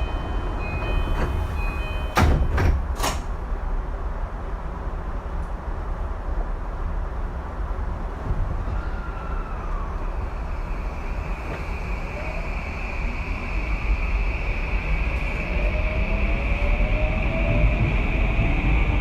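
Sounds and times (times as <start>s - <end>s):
steady high tone: 0.0s - 2.2s, 10.0s - 19.0s
train wheels rumbling on track: 0.0s - 19.0s.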